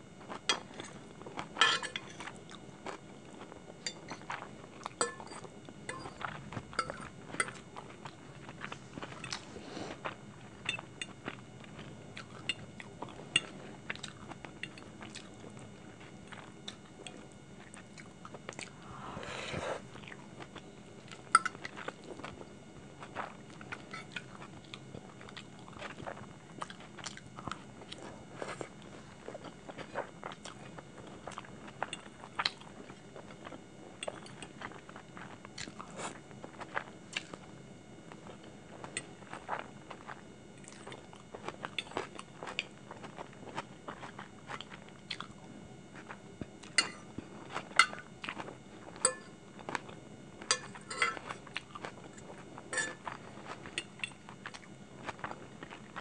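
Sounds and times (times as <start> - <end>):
close-miked chewing: 0.2 - 18.9, 19.8 - 37.5, 38.1 - 56.0.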